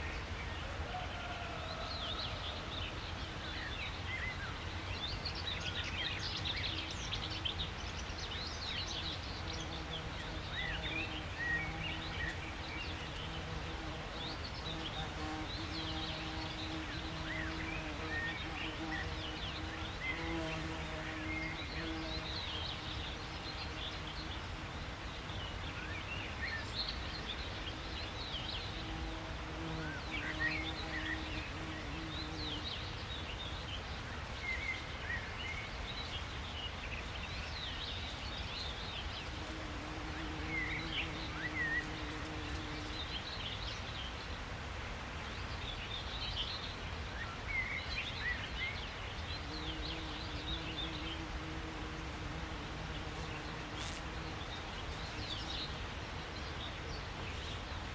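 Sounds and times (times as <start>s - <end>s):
small birds chirping: 2.1s - 44.3s, 45.2s - 57.9s.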